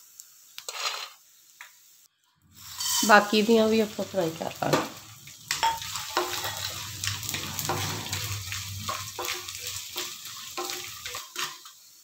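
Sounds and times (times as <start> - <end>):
gum sizzling in hot ghee: 0.0 - 12.0
wooden spatula scraping pan: 2.7 - 3.2, 5.5 - 11.6.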